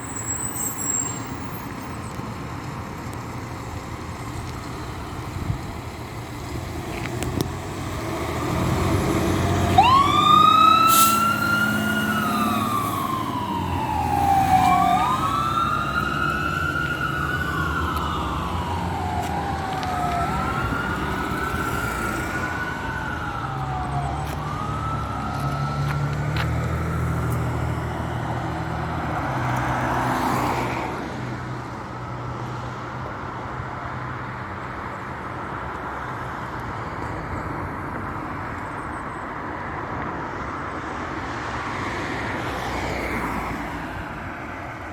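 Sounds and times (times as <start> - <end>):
truck engine rumble: 0.0 - 29.7
fire engine siren wailing: 7.7 - 30.7.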